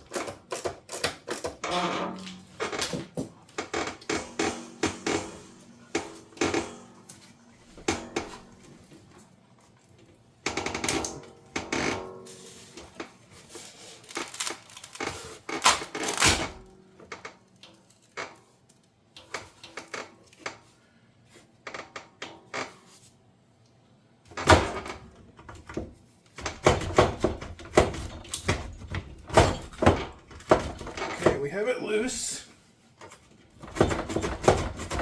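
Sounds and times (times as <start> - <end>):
plastic parts clicking and knocking: 0.0 - 5.3, 14.0 - 20.7, 24.3 - 31.3, 33.0 - 35.0.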